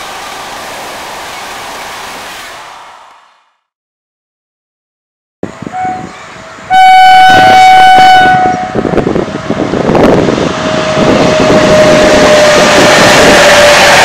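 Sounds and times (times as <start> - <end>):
locomotive horn blast: 5.4 - 8.9
train rumbling and clattering past: 5.4 - 14.0.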